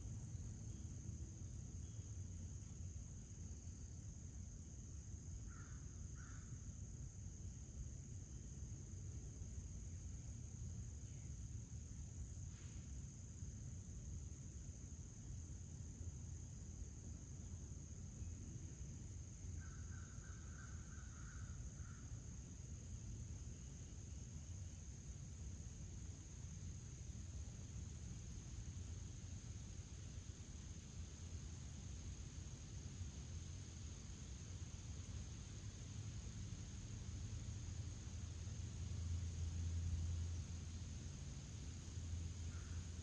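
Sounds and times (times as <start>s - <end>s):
crickets trilling: 0.0s - 43.0s
low outdoor rumble: 20.4s - 43.0s.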